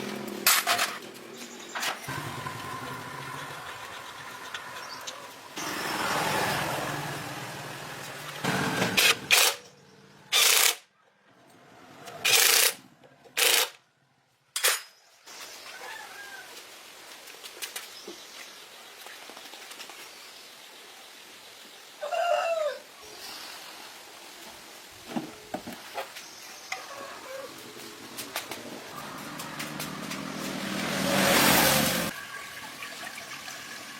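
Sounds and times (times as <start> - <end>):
rooster crowing: 22.0 - 22.9, 26.8 - 27.6.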